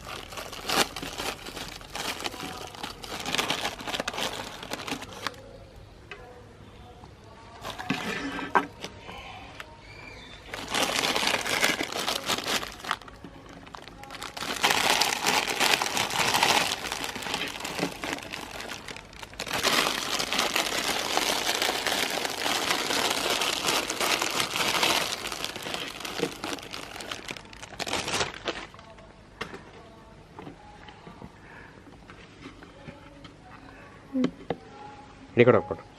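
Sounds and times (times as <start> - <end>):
meat grinder crunching: 14.2 - 28.4.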